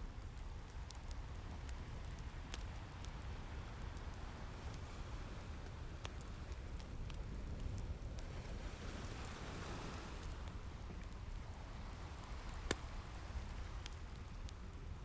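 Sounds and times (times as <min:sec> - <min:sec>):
fireplace crackling and popping: 0:00.1 - 0:15.0.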